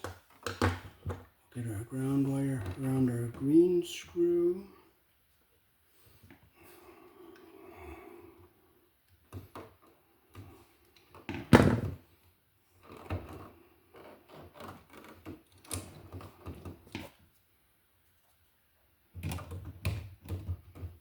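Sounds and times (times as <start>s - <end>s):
small clicks and knocks: 0.0s - 1.3s.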